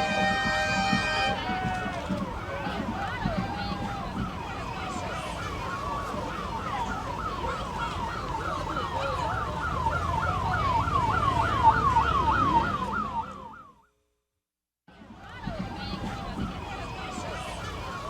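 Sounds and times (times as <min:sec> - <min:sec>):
parade street noise: 0:00.0 - 0:13.8, 0:14.9 - 0:18.0
siren yelping: 0:02.1 - 0:13.8.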